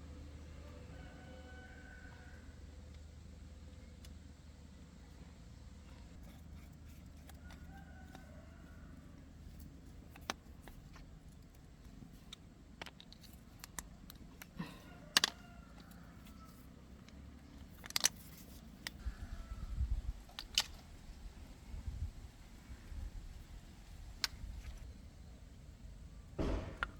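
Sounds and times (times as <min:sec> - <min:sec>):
tools clicking and knocking: 0:09.6 - 0:16.0, 0:17.0 - 0:19.0, 0:26.4 - 0:26.9.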